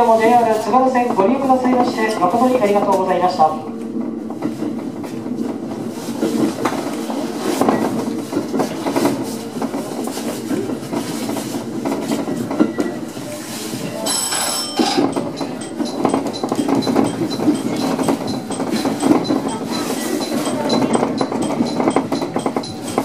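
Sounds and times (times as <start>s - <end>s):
train rolling rumble: 0.0s - 23.0s
high ringing tone: 14.2s - 23.0s
wheels clicking over rail joints: 14.4s - 23.0s.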